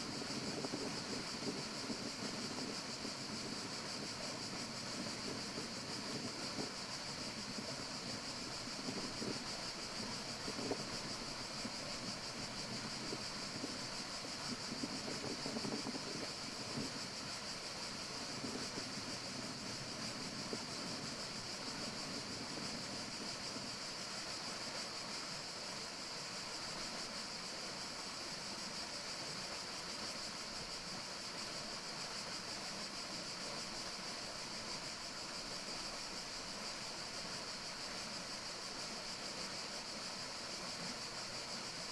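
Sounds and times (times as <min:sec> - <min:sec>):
high-pitched hiss: 0:00.0 - 0:41.9.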